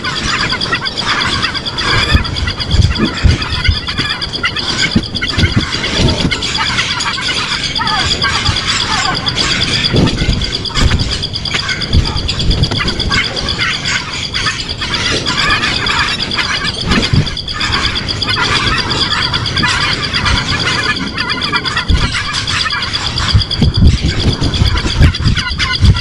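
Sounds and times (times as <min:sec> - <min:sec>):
high-pitched drone: 0:00.0 - 0:26.0
young birds chirping: 0:00.0 - 0:26.0
dull low thumps: 0:23.2 - 0:26.0.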